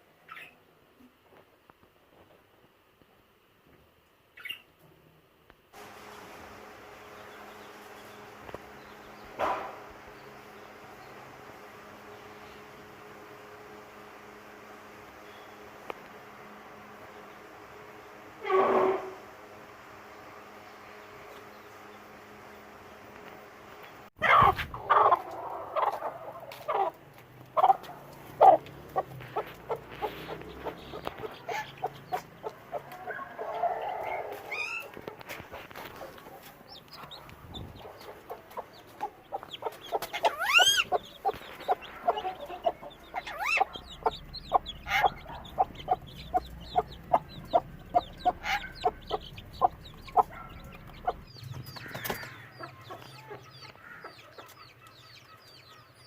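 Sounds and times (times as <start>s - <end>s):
budgerigar chicks chirping: 24.2s - 56.0s.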